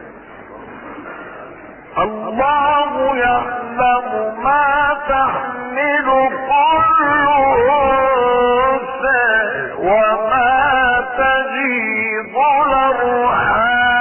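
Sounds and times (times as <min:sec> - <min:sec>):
man chanting recitation: 0:01.9 - 0:14.0.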